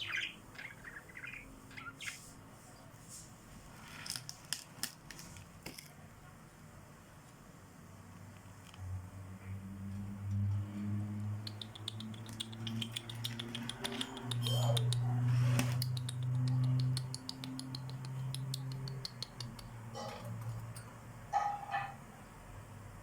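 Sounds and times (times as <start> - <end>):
small birds chirping: 0.0 - 3.0, 11.3 - 20.1.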